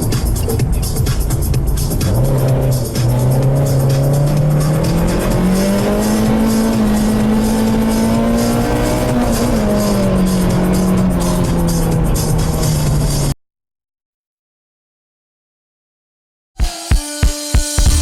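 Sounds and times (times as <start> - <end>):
car engine running hard: 0.0 - 13.4.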